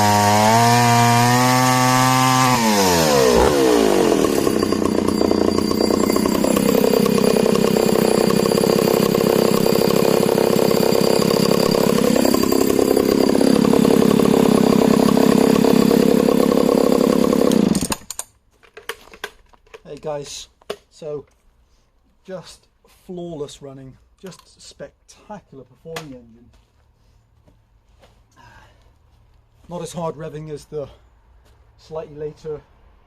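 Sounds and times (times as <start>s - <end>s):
chainsaw cutting wood: 0.0s - 18.2s.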